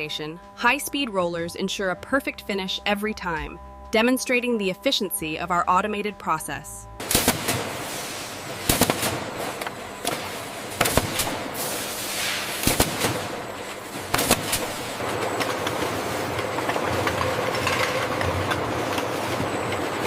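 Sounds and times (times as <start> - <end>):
machine hum: 0.0 - 20.0
machinery sharp clacks: 8.6 - 11.8, 12.5 - 19.1
brief rising hiss: 11.6 - 12.6.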